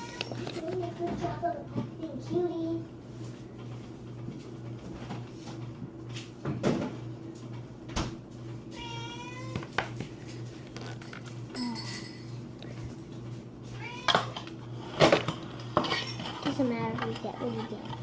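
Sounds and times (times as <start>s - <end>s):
cat meowing: 8.8s - 9.6s, 13.8s - 14.4s
plastic toys clattering: 15.9s - 18.0s.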